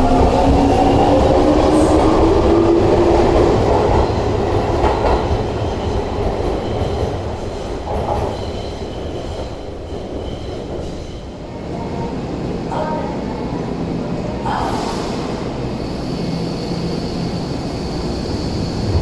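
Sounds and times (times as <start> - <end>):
train running and wheel rumble: 0.0 - 19.0.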